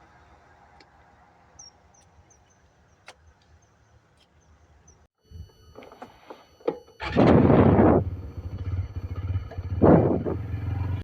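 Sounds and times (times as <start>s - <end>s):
motorcycle engine running: 7.0s - 11.0s.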